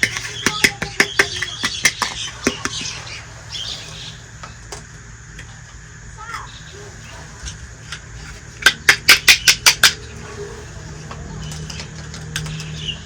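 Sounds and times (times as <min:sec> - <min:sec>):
faint squeaky chirps: 0:00.0 - 0:08.6, 0:09.3 - 0:13.0
small hard pieces clicking together: 0:07.9 - 0:10.1, 0:11.0 - 0:13.0.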